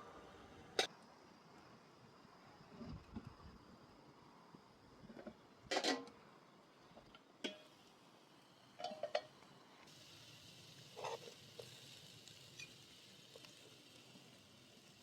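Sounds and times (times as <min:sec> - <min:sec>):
faint steady hiss: 0:00.0 - 0:15.0
dishes and utensils clinking: 0:08.8 - 0:09.3.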